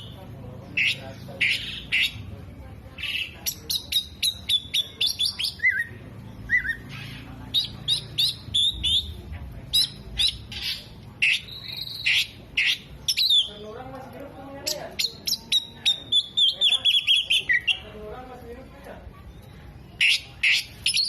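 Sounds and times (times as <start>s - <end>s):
bird twittering: 0.0s - 2.3s, 3.0s - 13.7s, 14.6s - 18.0s, 19.4s - 21.0s
bird singing sharp high chirps: 3.0s - 13.6s, 14.6s - 18.0s, 19.3s - 21.0s.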